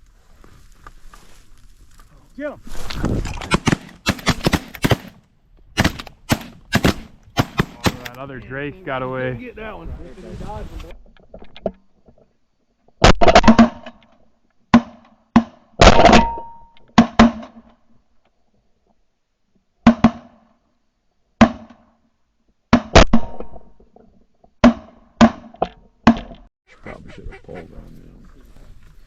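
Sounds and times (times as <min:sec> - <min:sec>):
shotgun shots: 0:03.4 - 0:05.2, 0:05.8 - 0:08.2.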